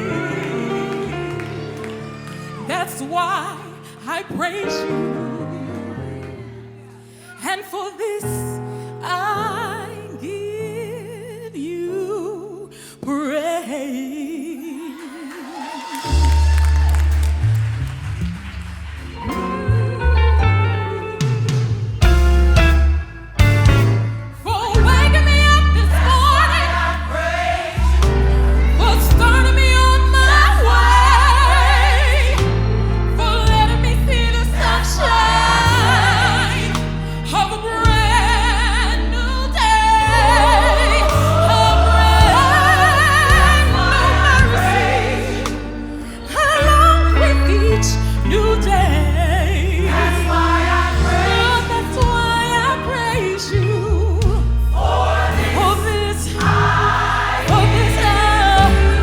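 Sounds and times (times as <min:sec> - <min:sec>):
gospel choir singing: 0:00.0 - 0:07.7, 0:24.5 - 0:59.0
band with heavy bass: 0:16.1 - 0:39.1, 0:39.8 - 0:59.0.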